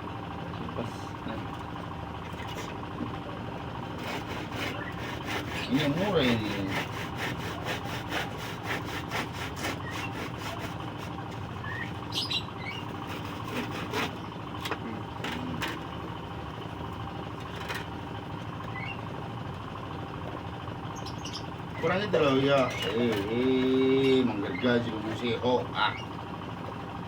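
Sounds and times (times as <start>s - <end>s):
background hum: 0.0s - 27.0s
handsaw cutting wood: 3.9s - 11.4s, 12.9s - 14.3s
bird chirps: 11.6s - 12.9s, 18.7s - 19.1s, 20.9s - 21.9s.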